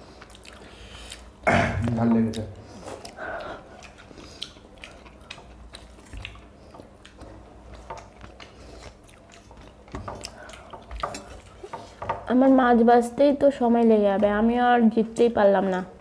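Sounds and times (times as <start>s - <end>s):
wet chewing and mouth smacks: 0.0s - 1.4s, 2.2s - 12.0s.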